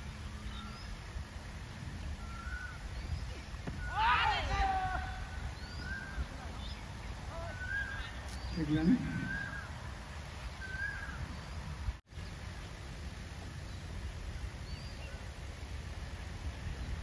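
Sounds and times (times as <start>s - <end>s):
birds chirping: 0.0s - 12.8s.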